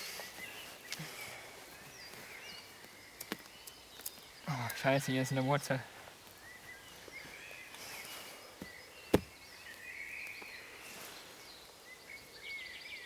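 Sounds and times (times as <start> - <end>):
small birds chirping: 0.0 - 13.0
spade striking a tree root: 9.1 - 9.4.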